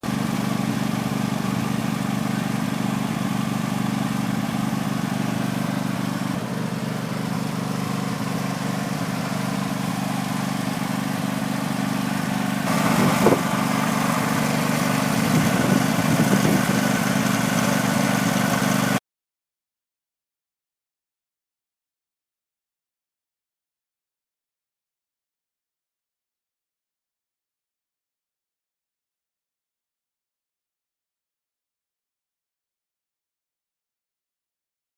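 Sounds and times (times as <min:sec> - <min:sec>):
lawn tractor engine running: 0:00.0 - 0:19.0.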